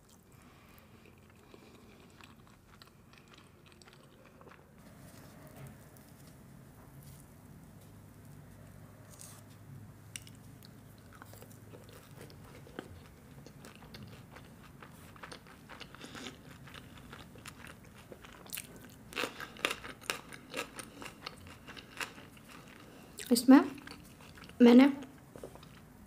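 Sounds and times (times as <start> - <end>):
chewing with wet mouth clicks: 1.0 - 4.6, 10.2 - 25.8.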